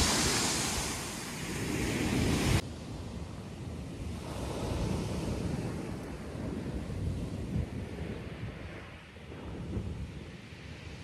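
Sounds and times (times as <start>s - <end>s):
surf washing on shingle: 0.0s - 2.6s
wind rumbling on microphone: 0.0s - 11.0s.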